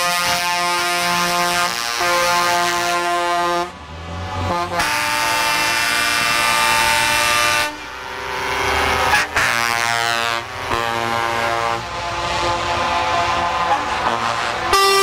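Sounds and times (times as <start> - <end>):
diesel truck engines running: 0.0 - 15.0
truck air horn blasts: 0.0 - 15.0.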